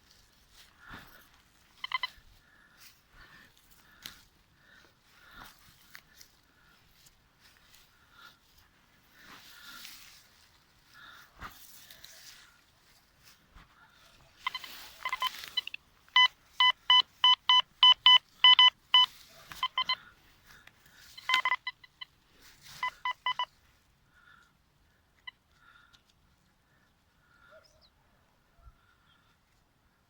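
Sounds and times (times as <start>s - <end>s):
rustling: 0.0s - 23.5s
metal detector beeping: 0.8s - 2.3s, 14.3s - 23.6s.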